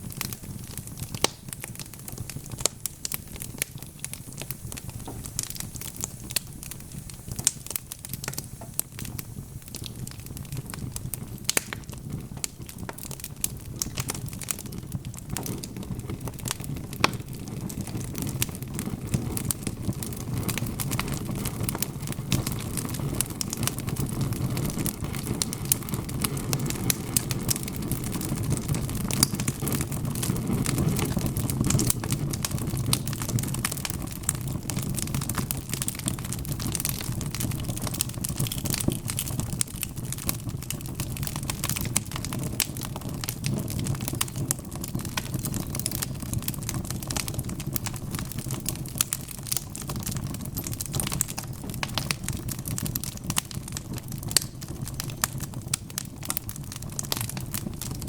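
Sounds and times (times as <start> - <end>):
low rumble of flame: 0.0 - 58.0
wood fire crackling: 0.0 - 58.0
sharp pops and snaps: 0.2 - 15.8, 16.5 - 17.4, 33.8 - 46.2.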